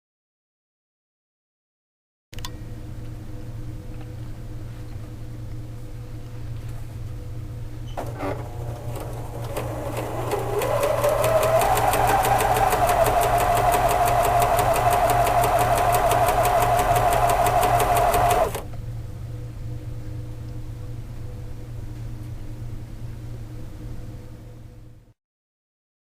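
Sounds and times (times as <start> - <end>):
sewing machine stitching: 8.0 - 18.7.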